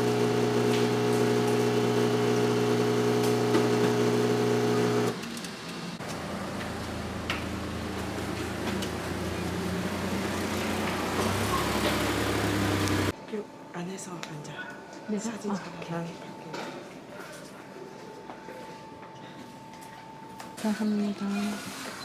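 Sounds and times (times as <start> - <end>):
vehicle engine hum: 6.0 - 13.1.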